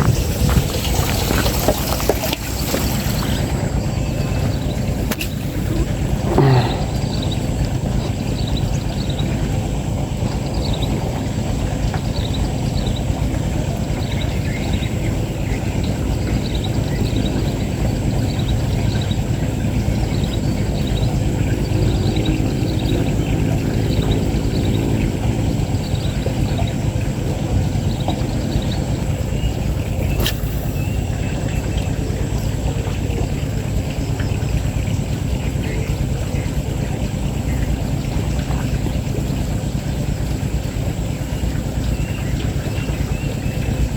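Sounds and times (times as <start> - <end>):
wind rumble on microphone: 0.0 - 43.9
small bird chirping: 27.8 - 33.4.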